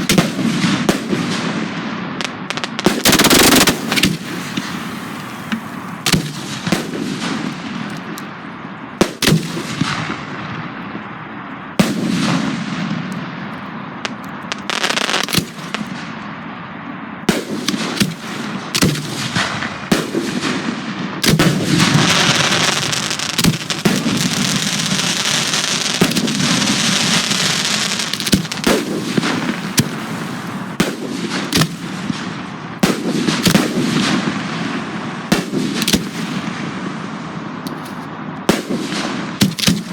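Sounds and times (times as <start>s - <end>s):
fireworks bangs and booms: 0.0s - 39.9s
fireworks hissing: 2.2s - 7.0s, 14.4s - 15.8s, 21.2s - 31.9s.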